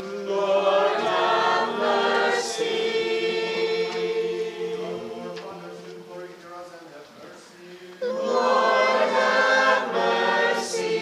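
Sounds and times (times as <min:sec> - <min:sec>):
choir singing in harmony: 0:00.0 - 0:06.7, 0:07.4 - 0:11.0.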